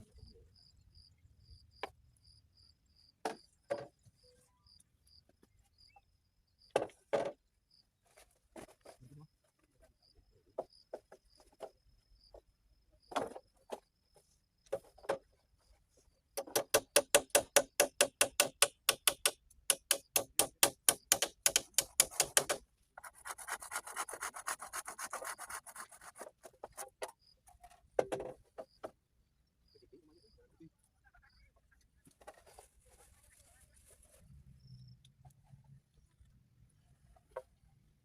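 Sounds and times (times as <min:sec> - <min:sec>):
hand saw cutting wood: 0:21.1 - 0:26.3.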